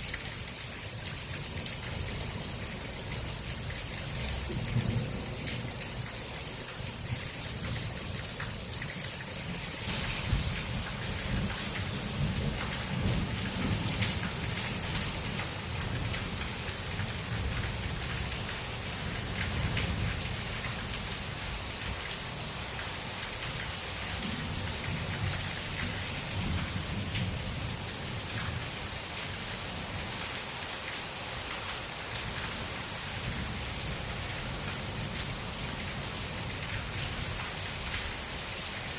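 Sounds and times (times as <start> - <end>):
heavy rain falling: 0.0 - 38.9
low rumble of thunder: 9.9 - 15.0.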